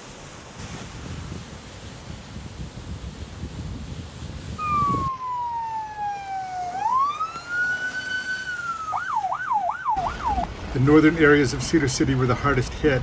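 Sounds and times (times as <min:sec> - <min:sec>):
emergency vehicle siren wailing: 0:04.6 - 0:10.5.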